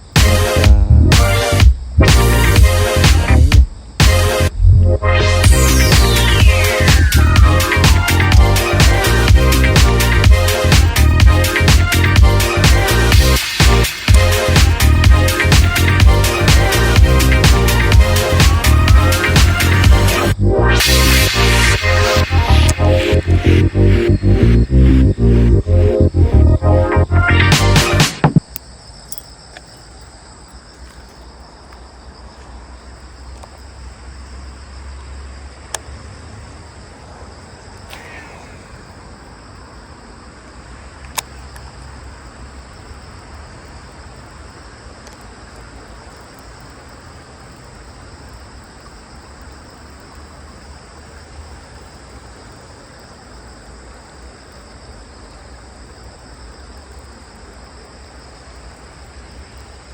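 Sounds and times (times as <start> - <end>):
crickets chirring: 0.0 - 59.9
sharp clicks: 13.5 - 14.7, 37.9 - 38.3.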